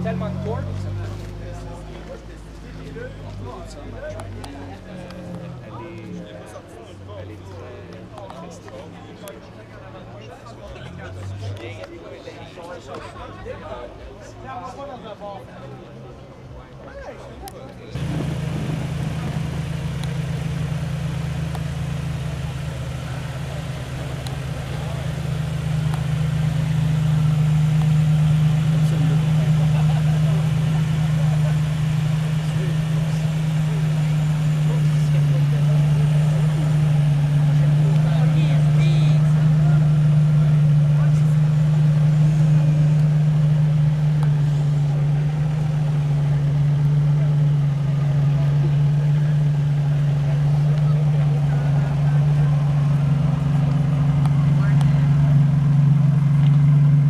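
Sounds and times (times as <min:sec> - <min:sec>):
car engine idling: 0:18.0 - 0:57.0.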